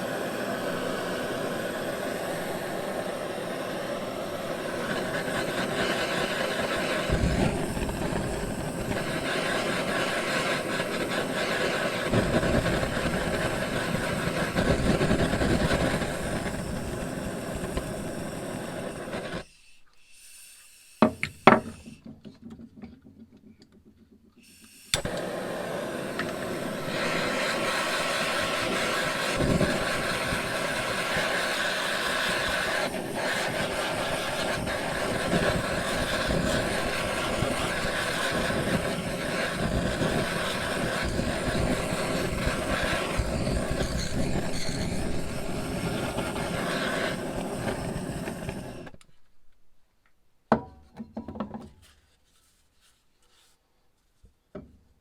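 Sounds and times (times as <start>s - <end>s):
power tool motor running: 24.6s - 49.0s.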